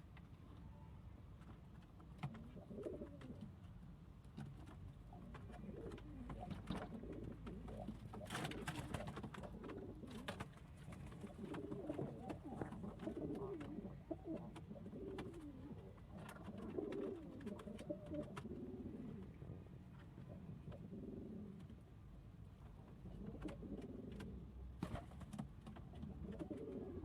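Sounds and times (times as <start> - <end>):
pigeons cooing: 2.4 - 3.4, 5.1 - 21.7, 23.0 - 24.5, 25.9 - 27.0.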